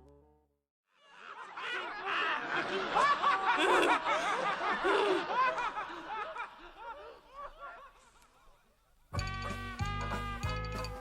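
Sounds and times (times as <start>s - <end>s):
people laughing together: 1.0s - 8.9s.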